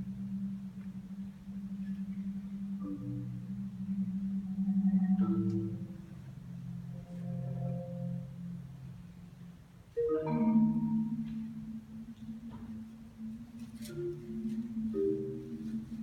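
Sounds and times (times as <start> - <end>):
solo marimba: 0.0 - 16.0.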